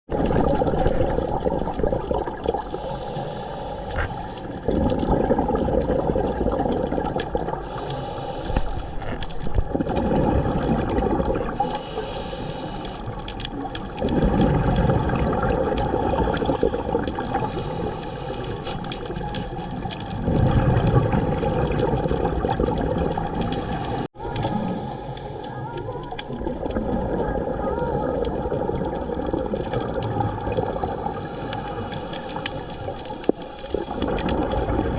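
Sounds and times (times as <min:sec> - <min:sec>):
rush of exhaust bubbles: 0:00.1 - 0:24.7, 0:25.8 - 0:34.9
regulator inhale hiss: 0:02.7 - 0:04.2, 0:07.6 - 0:09.1, 0:11.5 - 0:13.3, 0:17.3 - 0:19.7, 0:23.4 - 0:24.1, 0:31.0 - 0:33.7.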